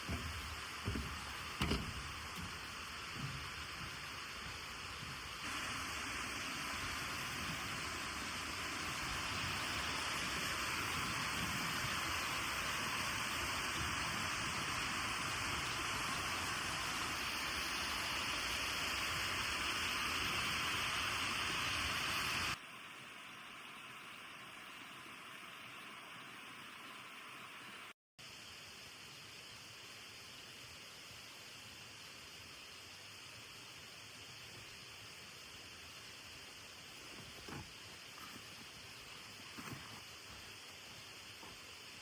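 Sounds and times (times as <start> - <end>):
stream water rushing: 0.0 - 22.8
quiet steady hiss: 0.0 - 42.0.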